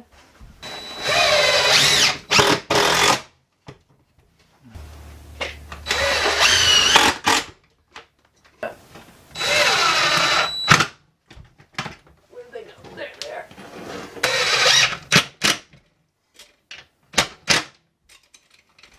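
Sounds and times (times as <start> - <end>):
power drill whine: 0.6 - 3.2, 4.8 - 7.5, 9.3 - 10.9, 14.2 - 15.2.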